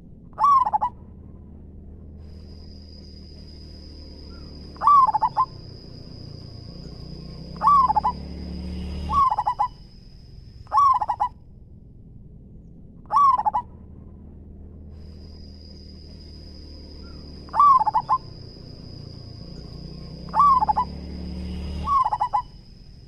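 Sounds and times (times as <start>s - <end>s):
high-pitched whine: 0.0s - 23.0s
low hum: 0.0s - 23.0s
dove cooing: 0.4s - 1.0s, 3.6s - 8.3s, 8.9s - 9.9s, 10.7s - 11.4s, 13.0s - 13.8s, 16.0s - 21.0s, 21.7s - 22.6s.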